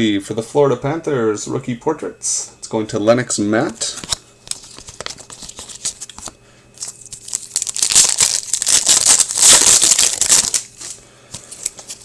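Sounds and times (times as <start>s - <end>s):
foil wrapper tearing and crinkling: 6.8s - 12.0s.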